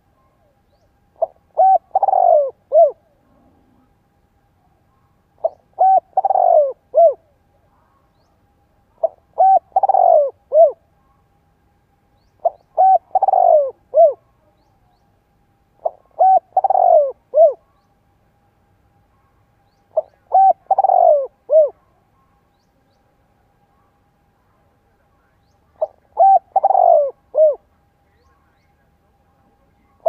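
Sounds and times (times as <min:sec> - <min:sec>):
dove cooing: 0:01.2 - 0:03.9, 0:05.4 - 0:07.4, 0:09.0 - 0:10.8, 0:12.4 - 0:14.3, 0:15.8 - 0:17.7, 0:19.9 - 0:21.9, 0:25.8 - 0:27.7.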